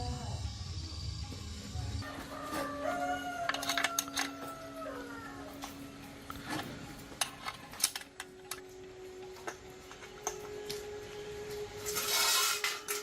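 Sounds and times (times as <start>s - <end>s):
metallic clicks of tools: 3.4s - 4.5s, 5.6s - 10.8s.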